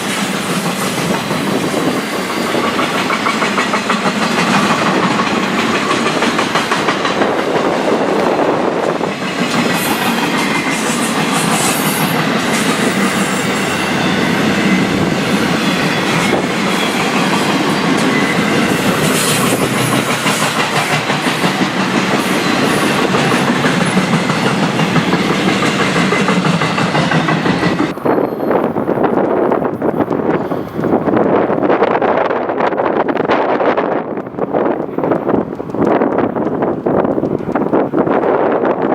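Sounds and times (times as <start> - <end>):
train wheels clacking over rail joints: 0.0 - 28.0, 33.0 - 38.9
wind on microphone: 0.0 - 38.9.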